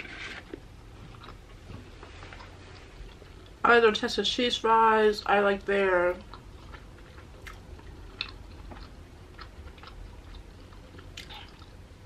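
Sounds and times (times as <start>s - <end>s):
person chewing food: 0.2s - 3.6s, 6.2s - 12.0s.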